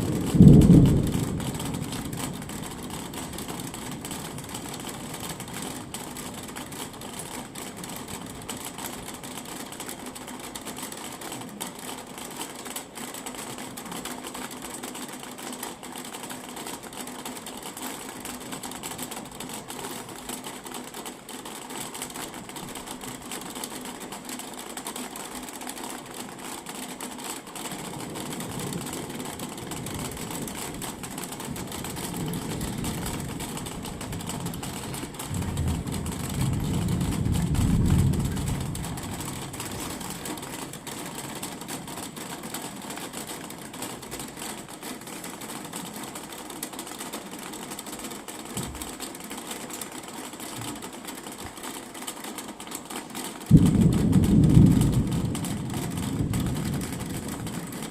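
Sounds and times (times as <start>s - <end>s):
low thunder rumble: 0.0s - 6.6s, 28.0s - 41.6s, 53.5s - 57.9s
rain pattering: 0.0s - 57.9s.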